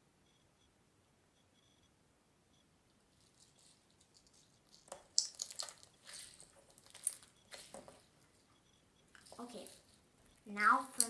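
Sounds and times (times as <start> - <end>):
googly eyes squirming in slime: 3.4 - 8.0
slime squishing and crackling: 3.4 - 8.1.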